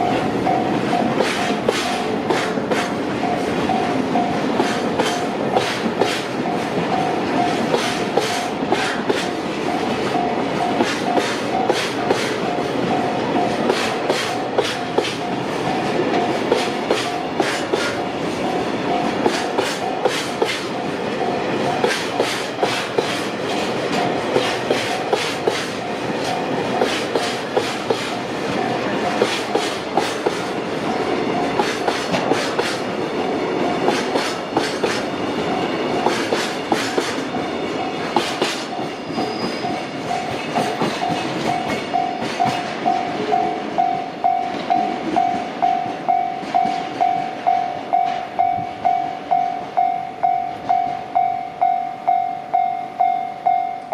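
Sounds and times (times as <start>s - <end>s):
train wheels clicking over rail joints: 0.0s - 52.2s.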